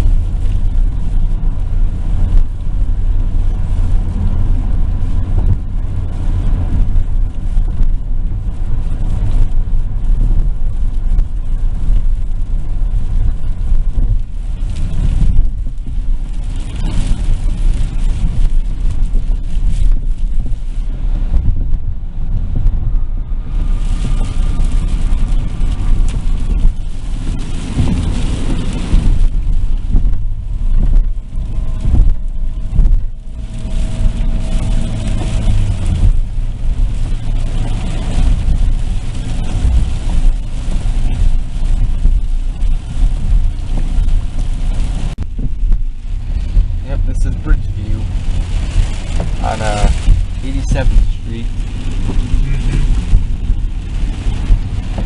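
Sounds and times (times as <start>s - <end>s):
car engine and tyre rumble: 0.0s - 55.0s
tyre hiss on wet road: 23.2s - 55.0s.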